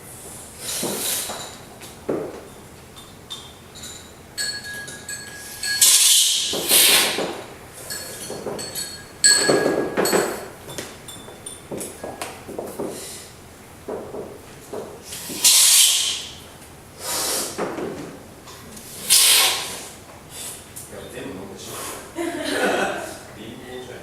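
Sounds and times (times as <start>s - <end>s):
spoons clinking against cups: 2.4s - 7.0s, 7.8s - 11.9s
hissing slurps of coffee: 6.6s - 7.2s, 15.1s - 16.2s, 18.9s - 20.0s.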